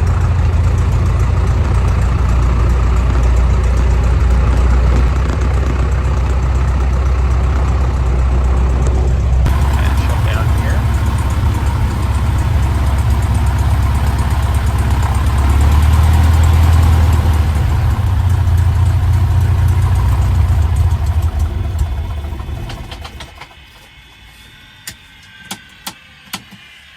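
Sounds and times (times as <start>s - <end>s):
propeller plane engine running: 0.0s - 23.9s.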